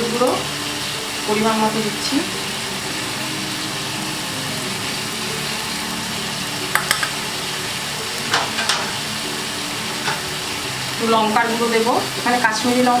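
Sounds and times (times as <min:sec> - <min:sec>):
masala sizzling in a frying pan: 0:00.0 - 0:13.0
spatula clicking against pan: 0:06.7 - 0:07.2
spatula scraping pan: 0:08.1 - 0:10.9.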